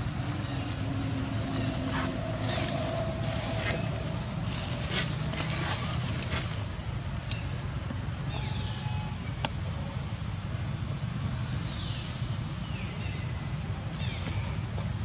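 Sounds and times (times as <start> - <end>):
wind rumble on microphone: 0.0 - 8.3.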